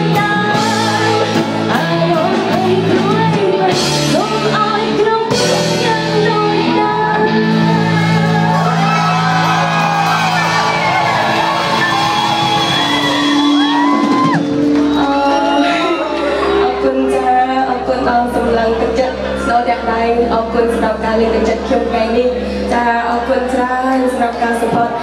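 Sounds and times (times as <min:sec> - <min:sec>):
woman singing: 0:00.0 - 0:09.0, 0:13.7 - 0:25.0
live band music: 0:00.0 - 0:22.9
people shouting: 0:08.3 - 0:14.4.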